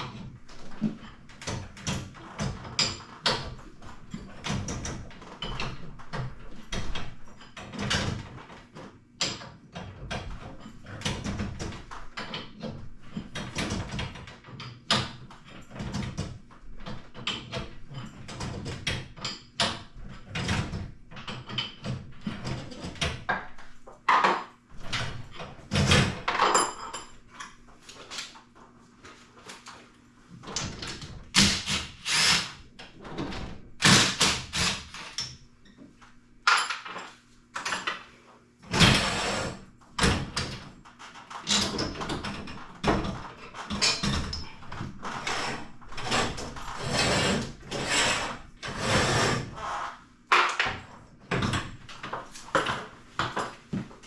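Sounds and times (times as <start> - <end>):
clanks and knocks on metal hardware: 9.2 - 27.6, 36.5 - 38.1, 41.2 - 44.9, 50.3 - 53.9.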